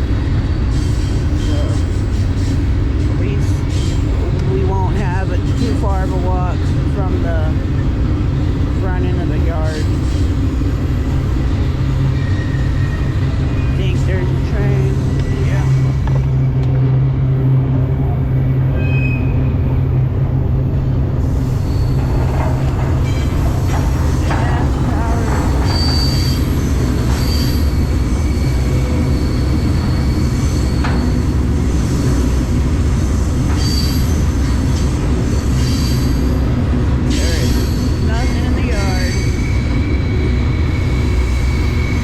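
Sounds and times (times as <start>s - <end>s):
freight train rumbling: 0.0s - 42.0s
train wheels squealing: 0.2s - 4.2s, 9.8s - 13.8s, 18.7s - 19.7s, 21.2s - 32.4s, 33.0s - 42.0s.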